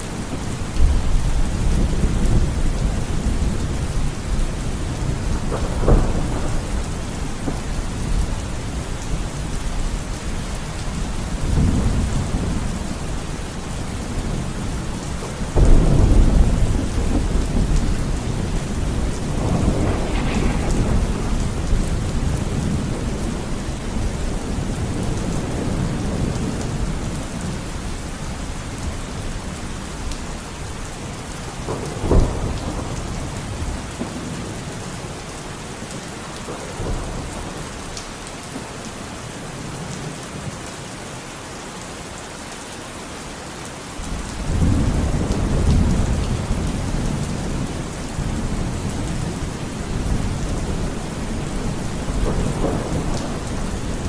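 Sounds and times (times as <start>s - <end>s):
rolling thunder: 0.0s - 35.3s, 44.1s - 54.0s
heavy rain: 0.0s - 54.0s.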